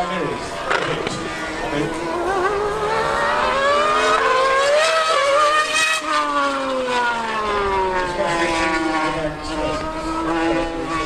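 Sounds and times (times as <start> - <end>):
high-revving racing engines: 0.0 - 11.0.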